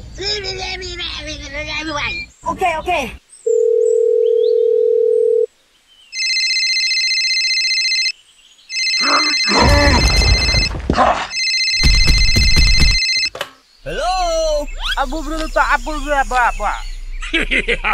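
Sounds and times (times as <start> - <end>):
mobile phone ringtone: 3.5 - 5.5, 6.2 - 8.1, 8.7 - 10.7, 11.3 - 13.3
telephone dial tone: 3.5 - 5.5, 6.2 - 8.1, 11.4 - 13.3.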